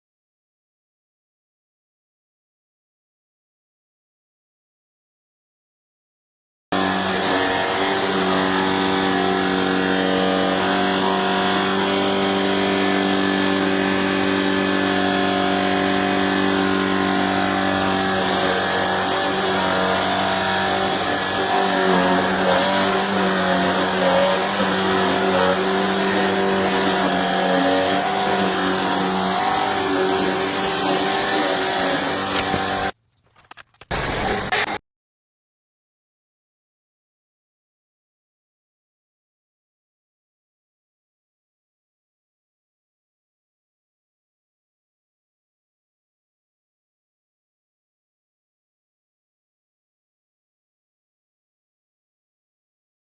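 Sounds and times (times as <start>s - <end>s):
vacuum cleaner motor whine: 6.8s - 33.0s.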